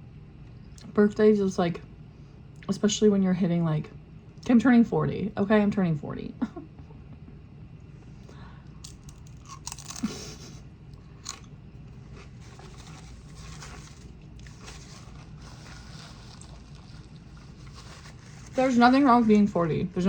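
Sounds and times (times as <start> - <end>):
person chewing crunchy food: 8.8 - 18.6.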